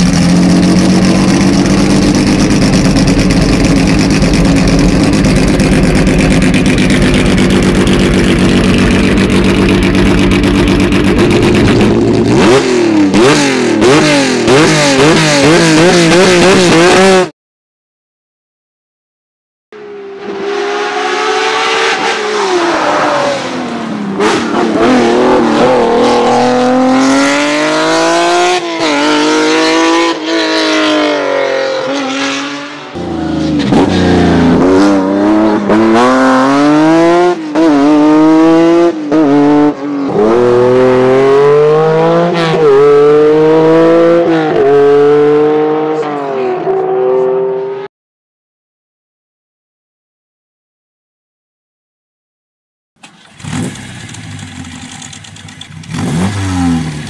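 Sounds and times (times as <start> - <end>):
car engine revving and shifting gears: 0.0 - 17.3, 19.8 - 47.9, 53.3 - 54.4, 55.8 - 57.0
deeper low sound: 0.3 - 12.4.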